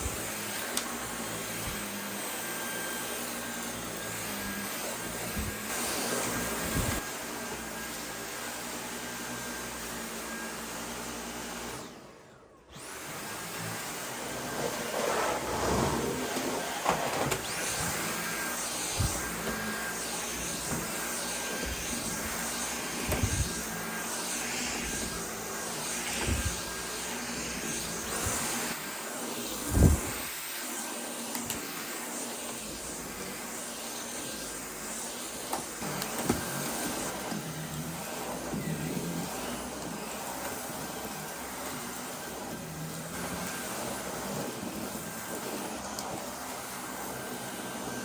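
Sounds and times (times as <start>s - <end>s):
household appliance rushing noise: 12.7s - 33.7s.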